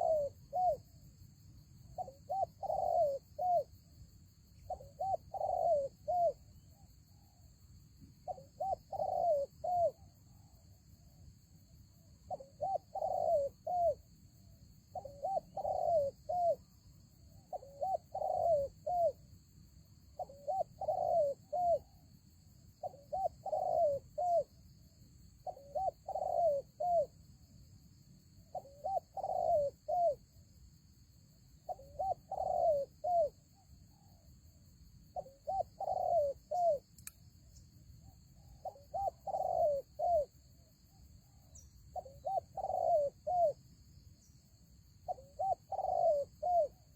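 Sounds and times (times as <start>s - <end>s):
dove cooing: 0.0s - 0.9s, 2.0s - 3.8s, 4.6s - 6.5s, 8.2s - 10.1s, 12.3s - 14.0s, 14.9s - 16.7s, 17.4s - 19.2s, 20.2s - 22.0s, 22.8s - 24.5s, 25.4s - 27.2s, 28.5s - 30.2s, 31.7s - 34.2s, 35.2s - 36.9s, 38.4s - 40.4s, 41.3s - 43.6s, 45.0s - 46.9s.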